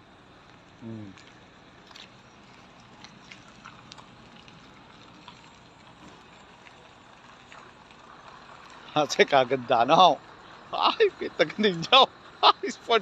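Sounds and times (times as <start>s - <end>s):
faint outdoor background noise: 0.0s - 13.0s
small clicks and ticks: 0.4s - 9.0s.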